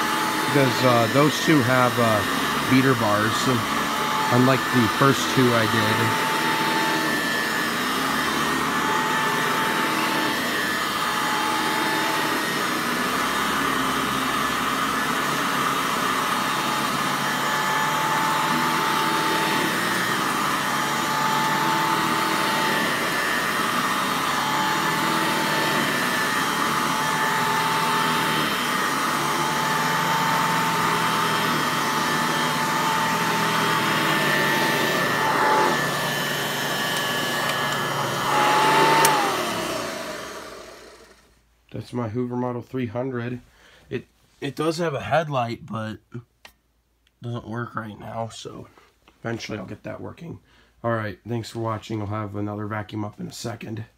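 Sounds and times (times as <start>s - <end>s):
vacuum cleaner motor whine: 0.0s - 41.4s.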